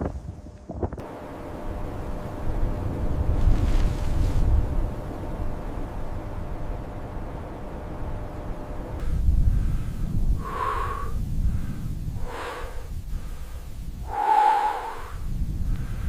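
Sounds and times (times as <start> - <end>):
wind buffeting microphone: 0.0 - 16.0
wheezy whistly breaths: 9.4 - 16.0.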